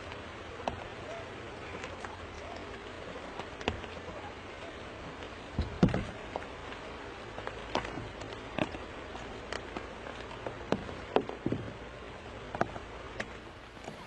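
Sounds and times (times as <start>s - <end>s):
light clicks and crackles: 0.0s - 14.0s
steady low background noise: 0.0s - 14.0s.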